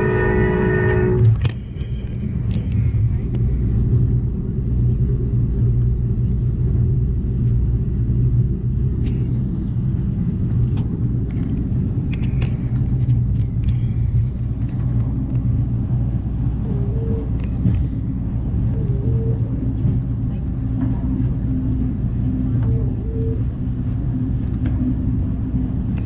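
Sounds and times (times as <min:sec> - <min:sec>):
train rumble on rails: 0:00.0 - 0:26.0
faint clicks and rattles: 0:10.5 - 0:15.5.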